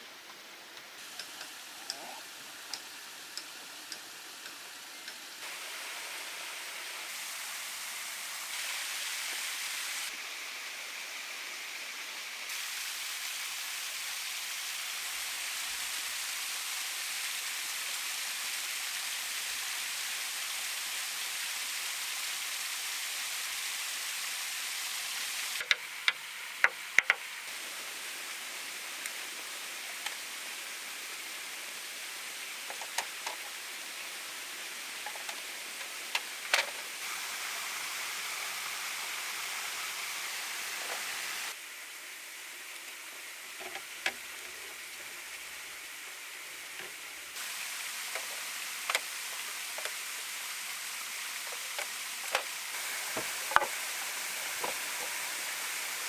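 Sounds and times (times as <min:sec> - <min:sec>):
steady hiss: 0:00.0 - 0:56.0
sharp knocks and taps: 0:25.6 - 0:27.2.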